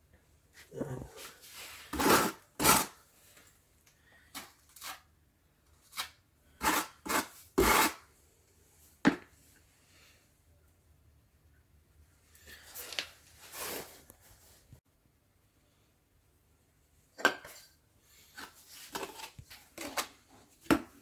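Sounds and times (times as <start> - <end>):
trowel scraping adhesive on stone: 1.9 - 3.0, 4.4 - 5.1, 5.9 - 8.0.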